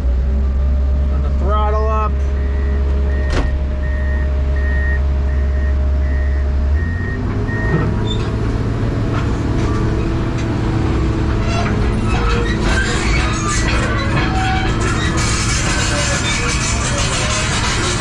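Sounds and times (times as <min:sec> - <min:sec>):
excavator diesel engine: 0:00.0 - 0:18.0
warning beeps: 0:02.2 - 0:07.9.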